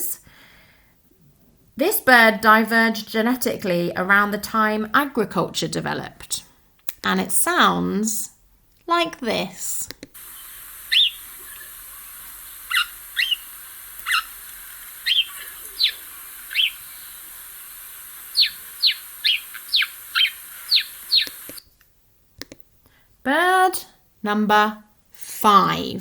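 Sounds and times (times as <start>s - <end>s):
recording hiss: 6.3s - 24.4s
sparrow chirping: 10.2s - 21.6s.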